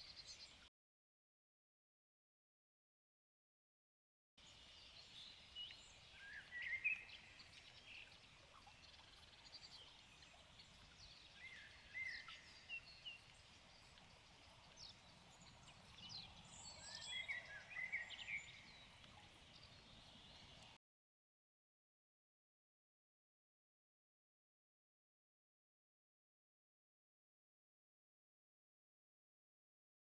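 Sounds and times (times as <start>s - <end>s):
faint steady hiss: 4.4s - 20.8s
songbirds chirping and singing: 4.5s - 20.8s.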